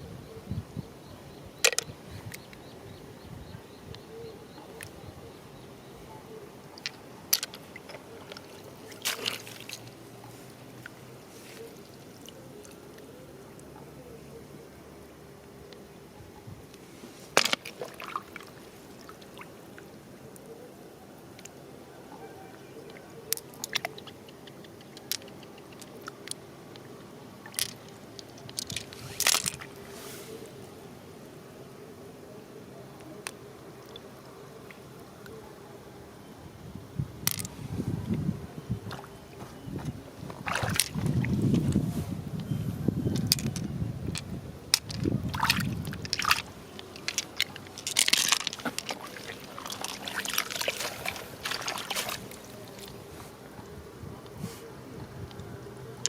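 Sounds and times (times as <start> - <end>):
water sloshing and splashing: 6.7 - 13.0, 17.3 - 19.9, 22.6 - 30.5, 38.8 - 41.9, 44.8 - 53.6
shell cracking and crunching: 44.8 - 50.8.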